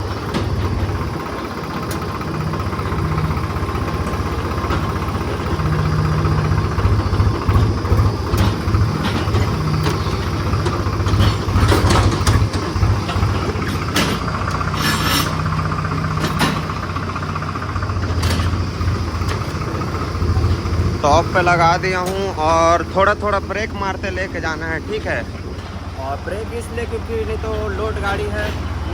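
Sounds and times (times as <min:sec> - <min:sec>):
diesel tractor engine: 0:00.0 - 0:28.9
sharp clanks and rattles: 0:00.0 - 0:28.9.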